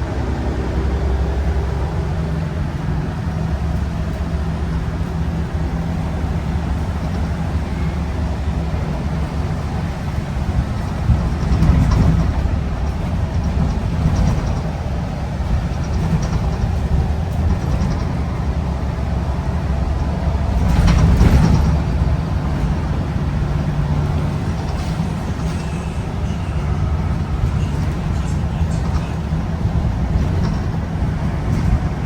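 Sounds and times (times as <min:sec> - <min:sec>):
bus engine rumbling: 0:00.0 - 0:32.0.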